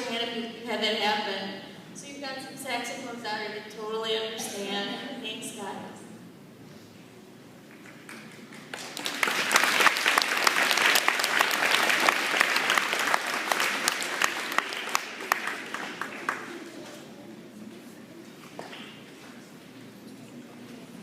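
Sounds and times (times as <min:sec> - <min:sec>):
audience applauding: 0:07.7 - 0:16.8.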